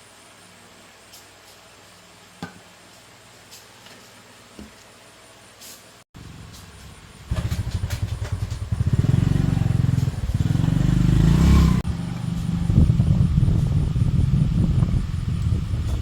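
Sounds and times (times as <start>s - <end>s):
motorbike engine revving: 6.2s - 16.0s.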